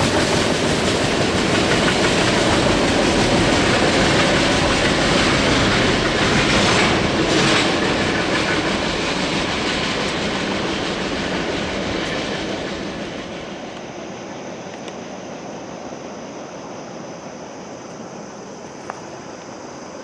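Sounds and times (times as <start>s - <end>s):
freight train wheels rolling on rails: 0.0s - 14.0s.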